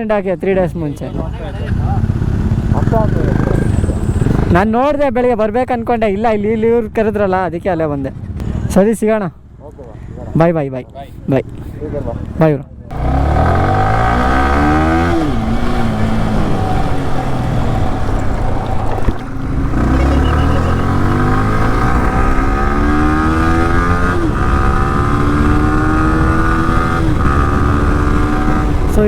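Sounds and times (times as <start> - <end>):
motorcycle engine accelerating: 1.1 - 4.8, 12.9 - 29.0.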